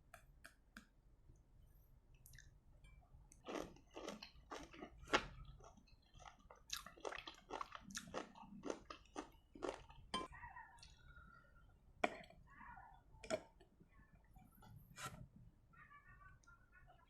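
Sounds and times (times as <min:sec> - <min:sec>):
wet crunchy chewing: 0:03.4 - 0:10.2.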